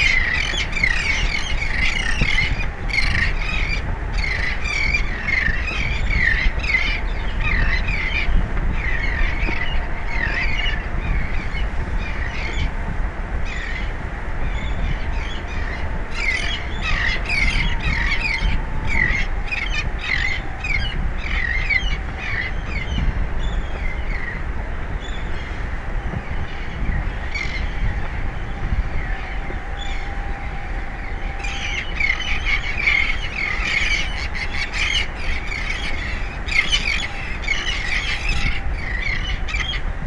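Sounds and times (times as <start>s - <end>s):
low rush of outdoor noise: 0.0s - 40.0s
birds squawking: 31.4s - 39.9s.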